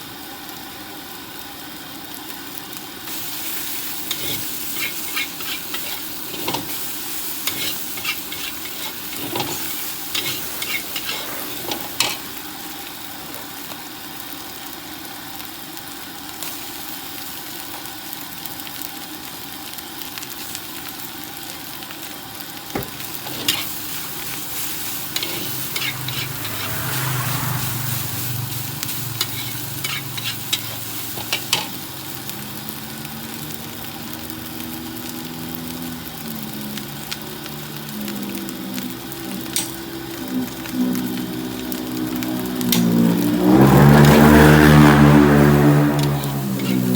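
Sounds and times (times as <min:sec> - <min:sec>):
rice sizzling in a wok: 0:00.0 - 0:46.9
low engine hum: 0:23.8 - 0:32.6, 0:36.0 - 0:46.9.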